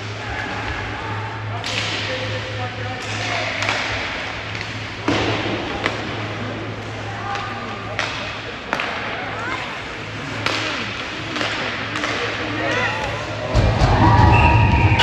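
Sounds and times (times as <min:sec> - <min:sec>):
hockey sticks and puck clacking: 0:01.6 - 0:13.5.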